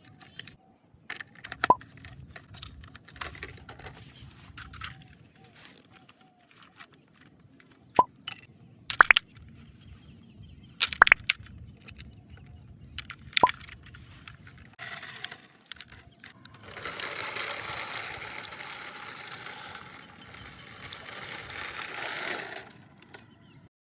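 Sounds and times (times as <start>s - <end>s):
toy car motor whirring: 1.4s - 6.8s, 13.4s - 23.4s
plastic clicks and snaps: 7.9s - 9.5s, 10.8s - 14.4s.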